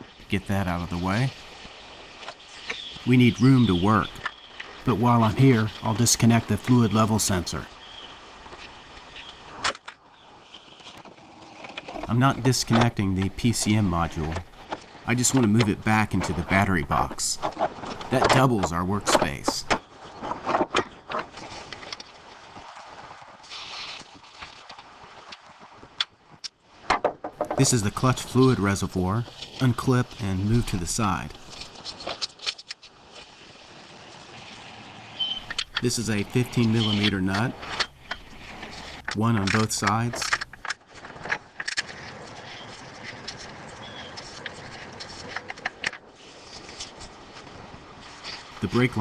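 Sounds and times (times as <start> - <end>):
steady background hiss: 3.0 - 8.6, 12.0 - 19.8, 27.4 - 31.6, 33.8 - 41.4, 48.2 - 49.0
rustling scrape: 4.2 - 12.2, 16.0 - 18.2, 19.8 - 26.0, 26.6 - 49.0.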